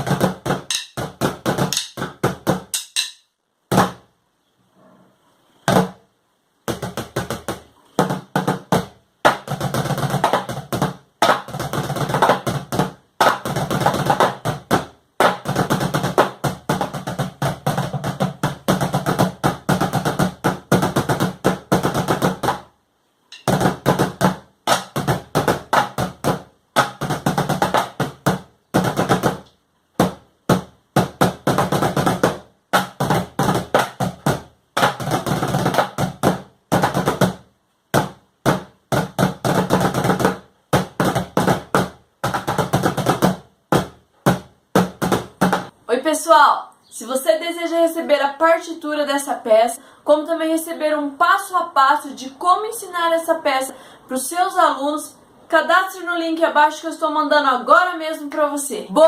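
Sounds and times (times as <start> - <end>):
buckets played as drums: 0.0 - 4.0, 6.7 - 22.7, 23.3 - 29.4, 30.0 - 45.7.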